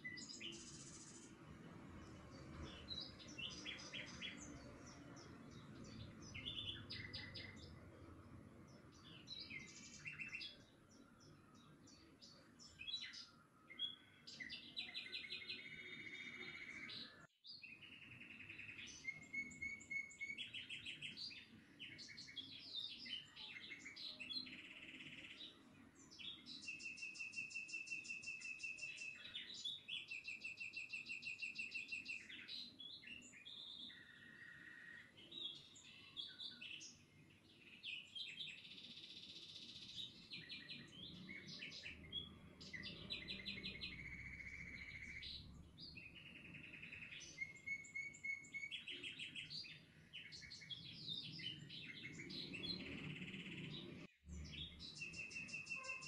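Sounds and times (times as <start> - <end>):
songbirds chirping and singing: 0.0 - 56.0.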